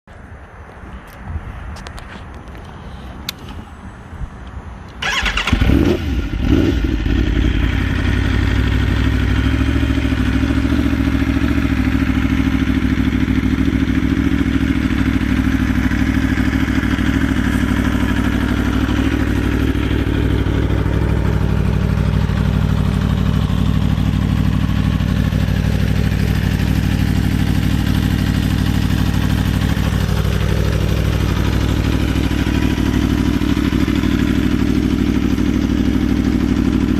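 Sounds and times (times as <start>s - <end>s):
motorcycle engine starting and idling: 4.8s - 36.9s.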